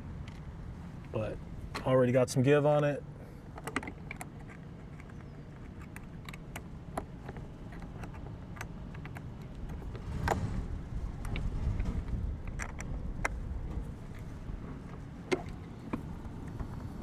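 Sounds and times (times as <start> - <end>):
screwdrivers clicking on metal: 3.5 - 10.0
steady low rumble: 8.8 - 17.0.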